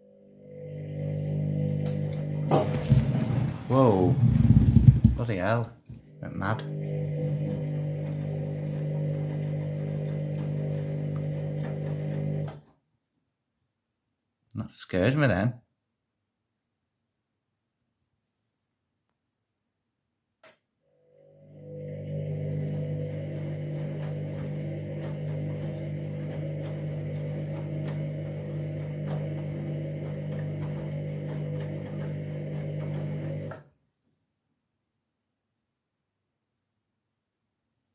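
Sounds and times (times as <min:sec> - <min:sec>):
washing machine drum spinning: 0:00.5 - 0:05.2, 0:06.6 - 0:12.6, 0:21.8 - 0:33.5.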